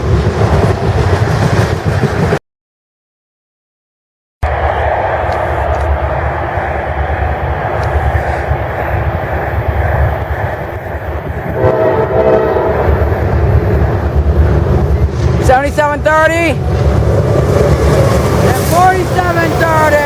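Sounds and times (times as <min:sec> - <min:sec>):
train rumbling past: 0:00.0 - 0:02.4, 0:04.4 - 0:20.0
locomotive horn blast: 0:11.6 - 0:13.1.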